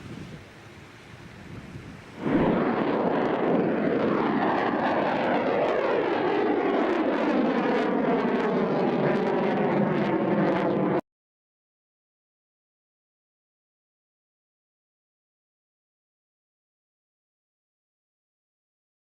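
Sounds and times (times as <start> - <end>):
rocket booster rushing: 2.2 - 11.0.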